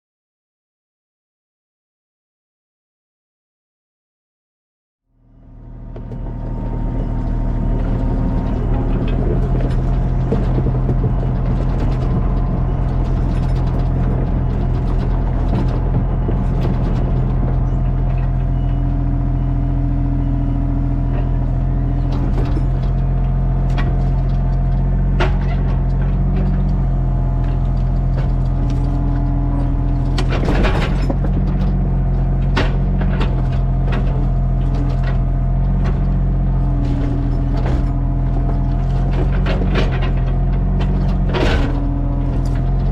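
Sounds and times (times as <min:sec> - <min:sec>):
bandsaw sawmill humming: 0:05.5 - 0:18.6.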